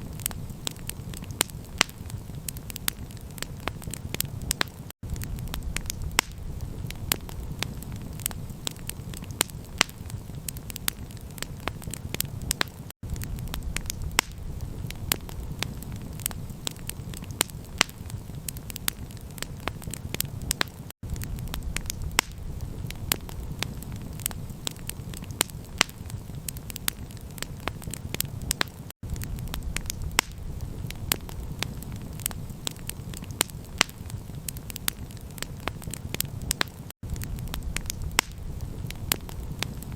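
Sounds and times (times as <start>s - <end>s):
campfire crackling and popping: 0.0s - 39.9s
steady low rumble: 3.6s - 9.0s, 13.0s - 16.9s, 21.0s - 25.0s, 29.0s - 33.1s, 37.0s - 39.9s.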